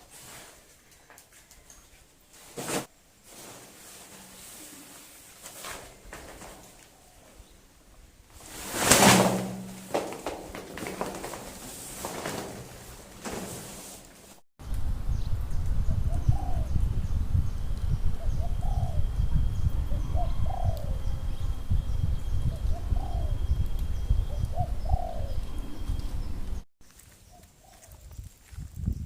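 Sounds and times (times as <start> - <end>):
dove cooing: 18.2 - 19.1, 19.9 - 21.0, 22.6 - 23.5, 24.3 - 25.6.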